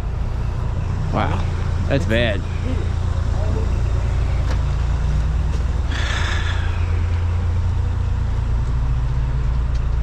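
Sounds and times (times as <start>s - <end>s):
heavy equipment engine rumbling: 0.0s - 10.0s.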